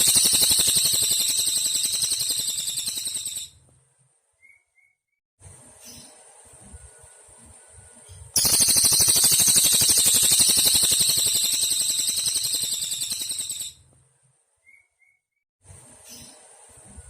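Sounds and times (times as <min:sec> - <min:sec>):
bird singing fast high trill: 0:00.0 - 0:03.5, 0:08.4 - 0:13.8.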